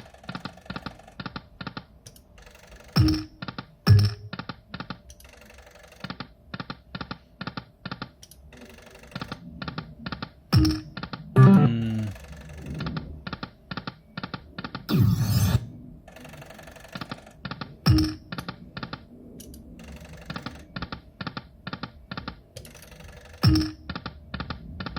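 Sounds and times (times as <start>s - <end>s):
slot machine clicking ticks: 2.5s - 4.3s, 17.9s - 18.2s, 22.6s - 23.9s.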